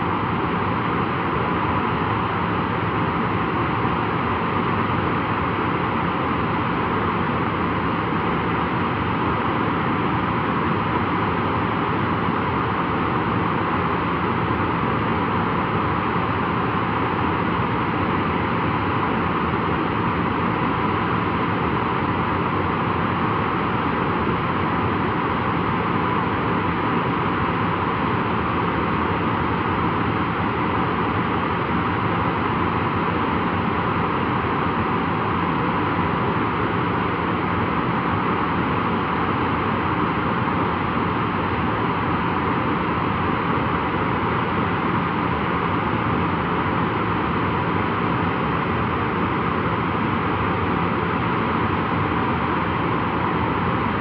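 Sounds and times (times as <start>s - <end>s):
jet engines idling: 0.0s - 54.0s.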